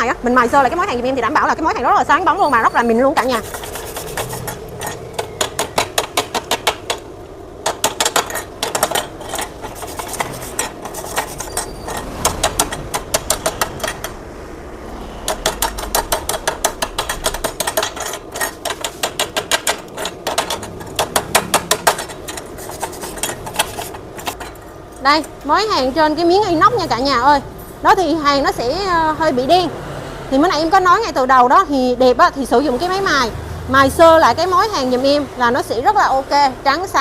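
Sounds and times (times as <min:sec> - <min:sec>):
sharp metal-on-metal taps: 0:03.9 - 0:14.2, 0:15.3 - 0:25.3.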